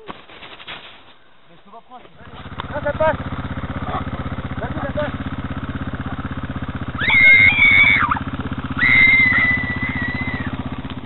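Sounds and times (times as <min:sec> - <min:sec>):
dirt bike engine idling: 0:01.3 - 0:11.0
long shrill tones: 0:06.9 - 0:10.6.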